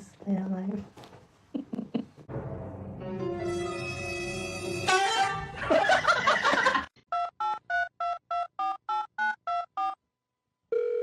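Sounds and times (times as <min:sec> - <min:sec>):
music: 0:02.3 - 0:06.6.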